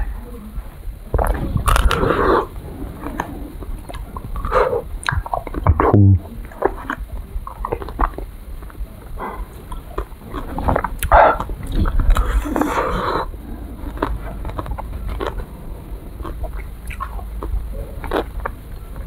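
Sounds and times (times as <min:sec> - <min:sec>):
chewing and biting ice cream bar: 0:01.2 - 0:02.5, 0:06.6 - 0:19.0
mouth sounds: 0:03.9 - 0:08.2.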